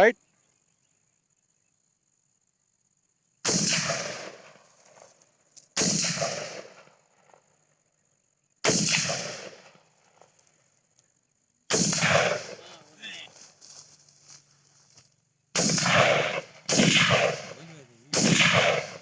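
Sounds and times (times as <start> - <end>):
gunshots with echo: 3.4 - 4.6, 5.8 - 6.9, 8.6 - 9.8, 11.7 - 13.2, 15.6 - 19.0.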